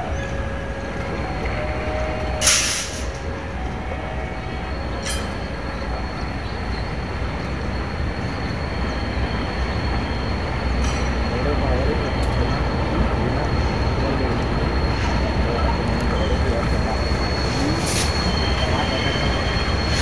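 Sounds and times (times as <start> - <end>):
diesel train rumbling: 0.0 - 20.0
thin high whine: 14.0 - 20.0.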